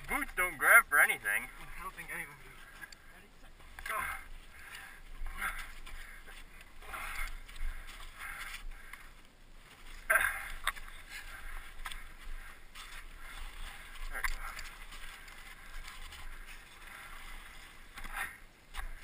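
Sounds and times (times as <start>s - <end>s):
people straining and grunting: 3.8s - 9.0s, 9.9s - 15.2s.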